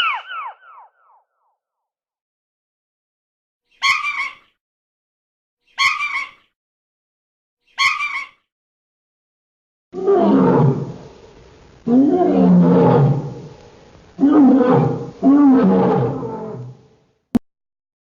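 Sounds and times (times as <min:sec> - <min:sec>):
big cat roaring: 0:10.0 - 0:11.1, 0:11.9 - 0:13.6, 0:14.2 - 0:16.9.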